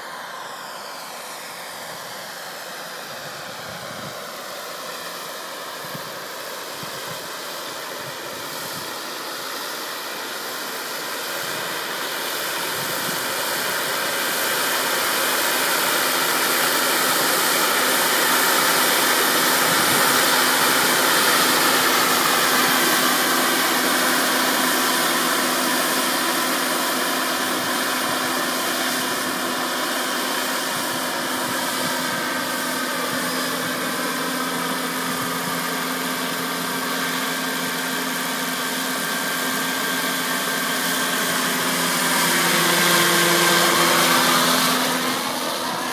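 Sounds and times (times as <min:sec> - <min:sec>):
model helicopter motor whine: 0:00.0 - 0:45.9.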